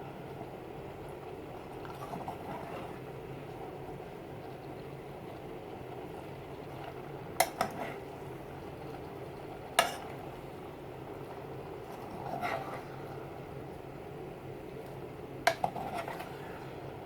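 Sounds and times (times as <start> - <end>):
low background noise: 0.0 - 17.0
utensil scraping a pan: 7.4 - 8.1, 11.8 - 13.0, 15.5 - 16.6.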